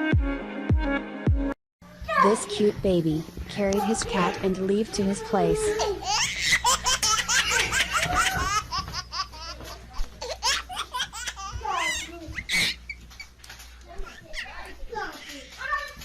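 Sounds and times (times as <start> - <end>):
small child laughing: 5.7 - 12.9.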